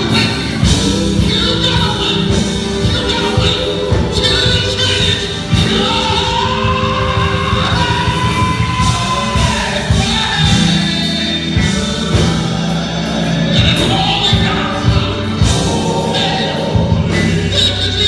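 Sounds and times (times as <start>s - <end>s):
bass and drums: 0.0s - 18.0s
choir singing gospel: 0.0s - 18.0s.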